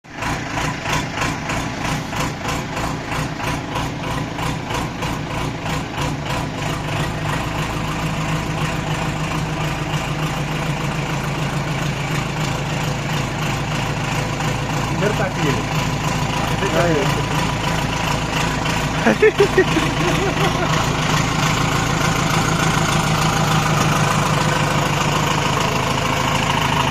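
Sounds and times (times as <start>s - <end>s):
diesel engine idling: 0.0s - 26.9s.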